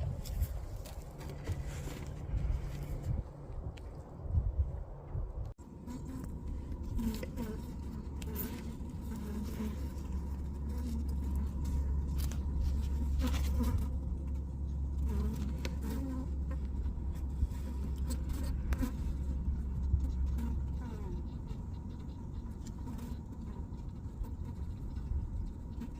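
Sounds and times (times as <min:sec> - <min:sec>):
low rumble: 0:00.0 - 0:22.5
honeybees buzzing: 0:05.6 - 0:25.9.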